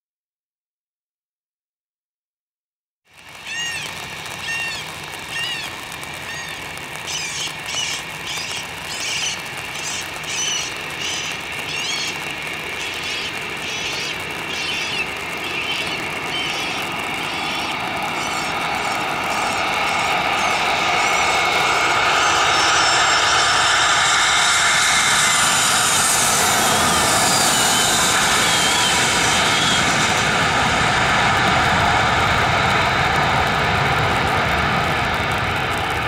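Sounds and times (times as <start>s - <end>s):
steady hiss: 3.1s - 24.0s
jet airliner engine: 3.1s - 36.0s
bird chirping: 3.4s - 21.6s.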